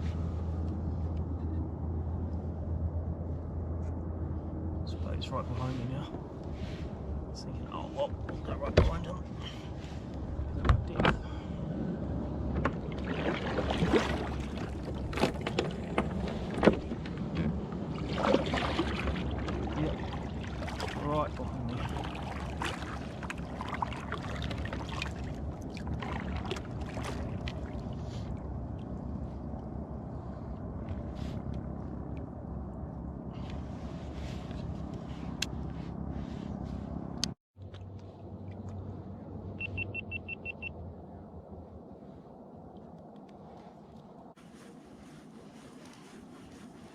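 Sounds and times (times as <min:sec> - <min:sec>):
wind rumble: 0:00.0 - 0:46.9
water sloshing around kayak: 0:12.5 - 0:29.0.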